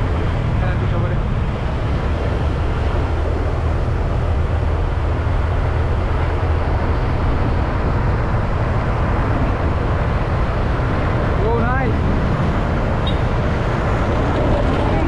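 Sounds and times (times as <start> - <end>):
road and wind noise: 0.0 - 15.0.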